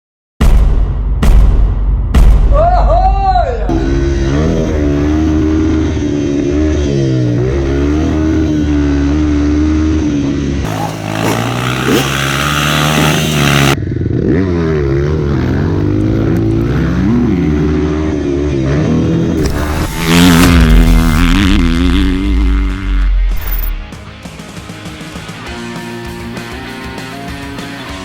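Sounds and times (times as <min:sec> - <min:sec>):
dirt bike engine revving: 0:03.7 - 0:24.2.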